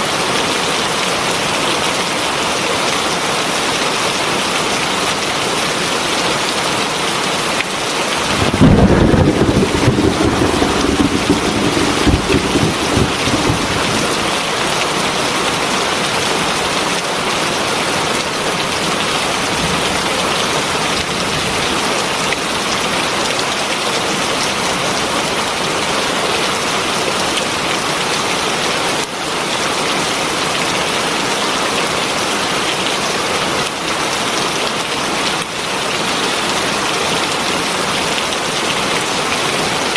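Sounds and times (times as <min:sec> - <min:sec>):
heavy rain falling: 0:00.0 - 0:39.9
thunder rumbling: 0:08.1 - 0:15.2.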